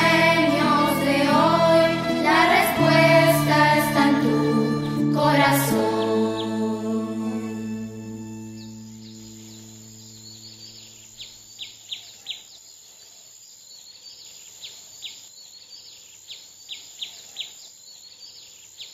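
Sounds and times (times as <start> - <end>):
background music: 0.0 - 10.8
steady high hiss: 0.0 - 11.6
birds chirping: 0.0 - 12.8.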